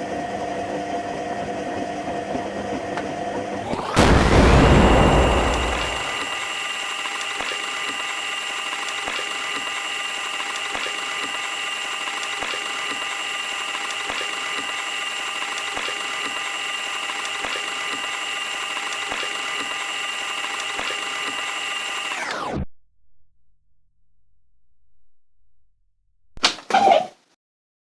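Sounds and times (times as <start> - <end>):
washing machine spinning whine: 0.0 - 3.6, 7.9 - 22.2.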